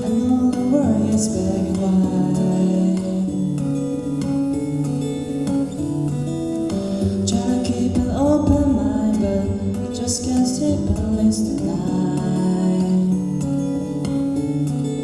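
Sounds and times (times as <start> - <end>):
person singing: 0.0 - 4.2, 6.9 - 14.5
fingerstyle acoustic guitar: 0.0 - 15.0.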